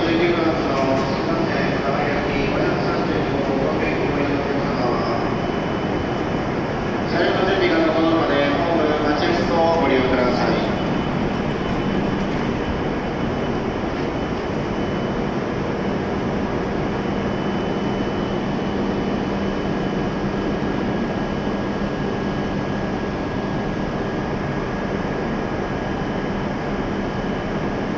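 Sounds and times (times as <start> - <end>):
train equipment humming: 0.0 - 17.2
faint high whines: 0.0 - 20.0.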